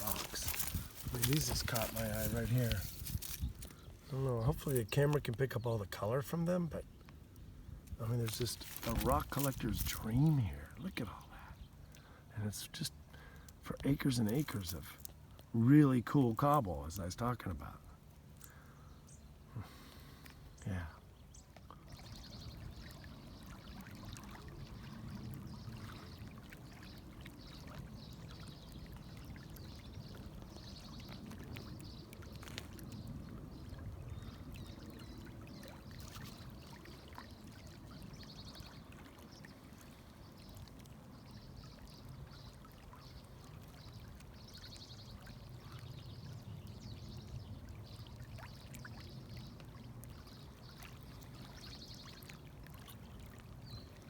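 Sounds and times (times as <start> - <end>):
river water running over rocks: 0.0 - 4.9, 8.0 - 11.9.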